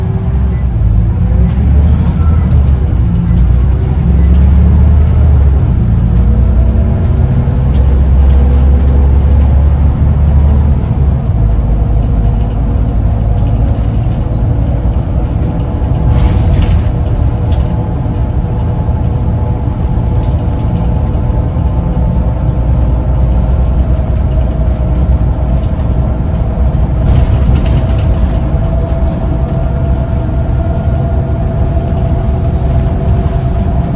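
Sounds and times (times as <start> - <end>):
bus diesel engine rumbling: 0.0 - 33.9.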